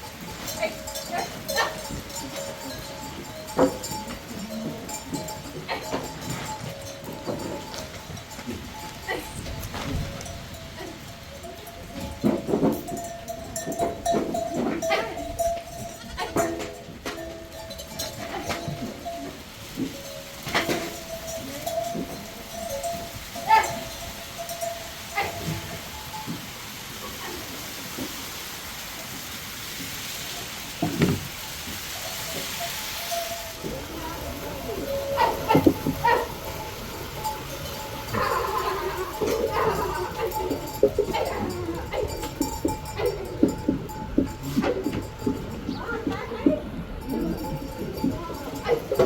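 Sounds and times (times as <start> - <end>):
steady bell-like ringing: 0.0 - 26.4, 32.1 - 49.0
farm animals calling: 0.0 - 27.8, 31.3 - 49.0
heavy rain hissing: 17.6 - 42.4.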